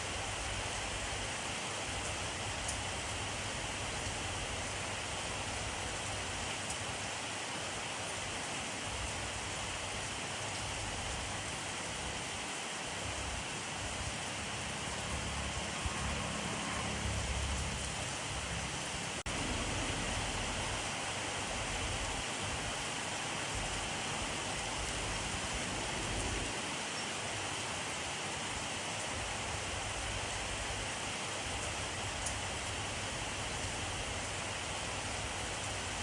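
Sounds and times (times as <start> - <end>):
steady rain hiss: 0.0 - 36.0.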